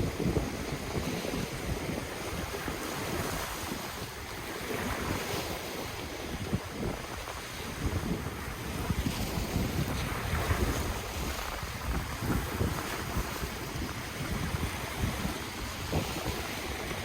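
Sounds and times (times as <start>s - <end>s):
ocean waves washing ashore: 0.0s - 17.0s
wind buffeting microphone: 0.0s - 17.0s.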